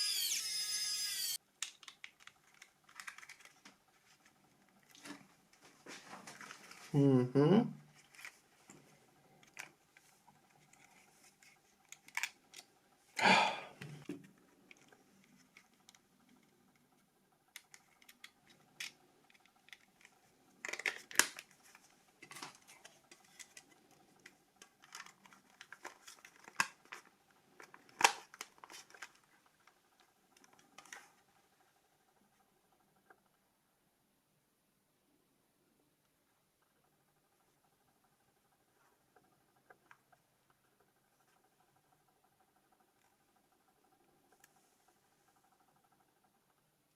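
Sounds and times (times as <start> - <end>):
hands handling plastic parts: 1.5 - 6.9, 7.9 - 12.7, 17.5 - 31.2.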